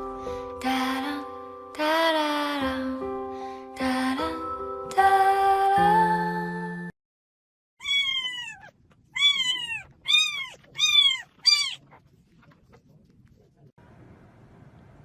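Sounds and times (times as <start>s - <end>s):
cat meowing: 7.8s - 12.0s.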